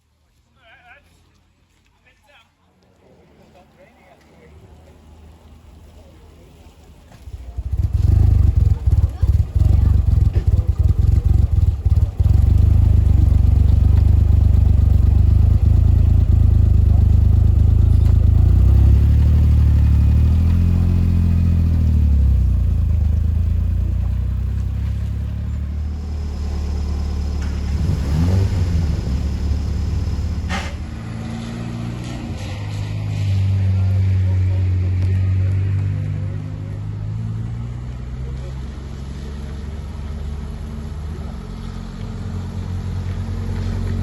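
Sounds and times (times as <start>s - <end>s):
car engine and road noise: 3.1s - 44.0s.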